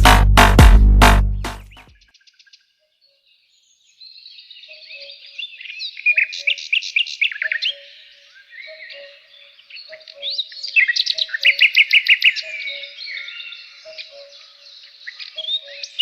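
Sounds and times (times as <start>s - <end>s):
electronic music: 0.0s - 1.9s
songbirds chirping and trilling: 1.7s - 16.0s.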